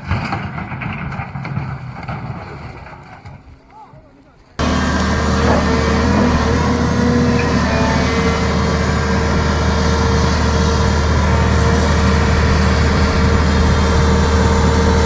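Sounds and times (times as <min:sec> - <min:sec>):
engine whine: 0:04.6 - 0:15.0
truck engine drone: 0:04.6 - 0:15.0.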